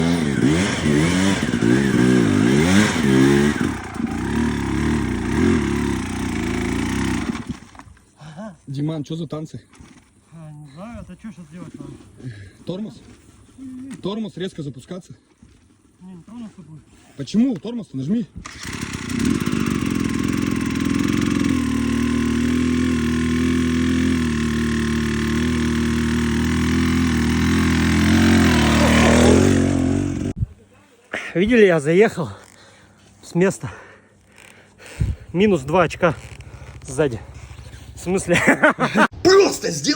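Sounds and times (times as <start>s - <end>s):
motorcycle engine revving: 0.0s - 7.9s, 18.4s - 30.4s, 34.2s - 39.1s.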